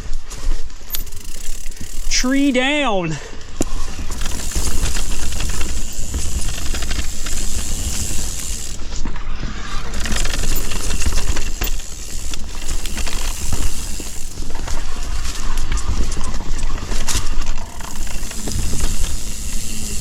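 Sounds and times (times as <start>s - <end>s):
bike chain and frame rattling: 0.0s - 2.6s, 3.7s - 20.0s
wind rumble on microphone: 12.6s - 20.0s.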